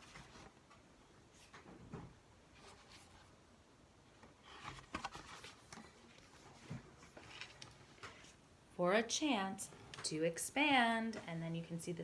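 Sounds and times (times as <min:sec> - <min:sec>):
paper book page turning: 0:04.4 - 0:08.4.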